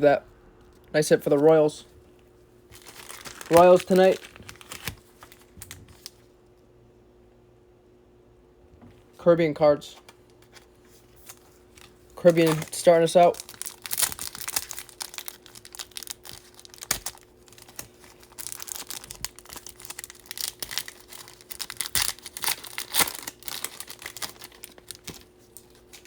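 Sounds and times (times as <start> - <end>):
wrapper crinkling: 2.7 - 6.2, 10.4 - 26.0
cards clicking and snapping: 13.4 - 26.0.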